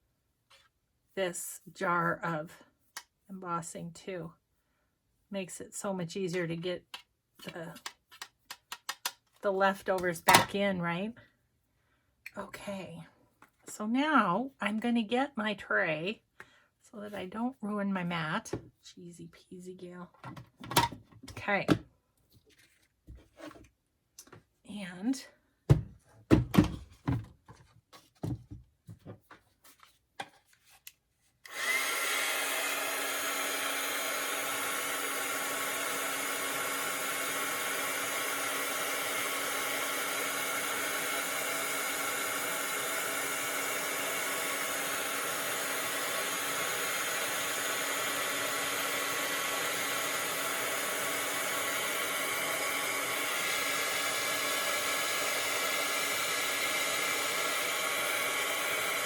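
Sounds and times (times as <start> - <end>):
heat gun blowing air: 31.5 - 59.0.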